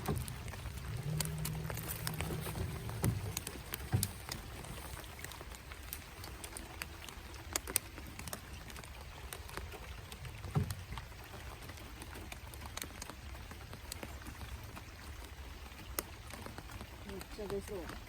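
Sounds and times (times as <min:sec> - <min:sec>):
dull thump: 0:00.0 - 0:04.8
low steady rumble: 0:00.0 - 0:07.4
raindrops ticking: 0:00.0 - 0:18.0.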